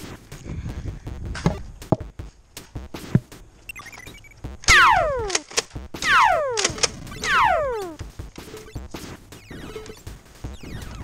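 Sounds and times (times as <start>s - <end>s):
sci-fi blaster shot: 4.7s - 5.4s, 6.0s - 8.0s
small clicks: 4.7s - 5.8s, 6.5s - 7.2s.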